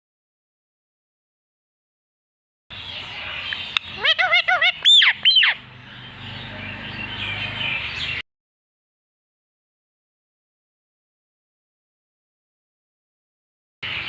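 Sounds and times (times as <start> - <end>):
parrot chirps: 3.5 - 5.6
parrot squawks: 3.5 - 5.6.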